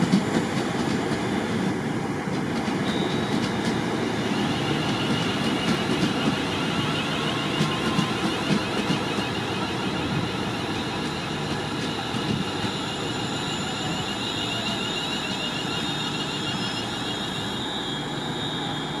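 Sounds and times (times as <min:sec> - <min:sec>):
train high whine: 0:00.0 - 0:19.0
train rolling rumble: 0:00.0 - 0:19.0.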